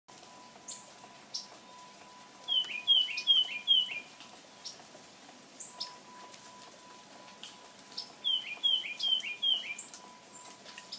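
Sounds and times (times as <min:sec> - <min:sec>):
songbird whistled notes: 0:02.5 - 0:04.1, 0:08.0 - 0:10.9.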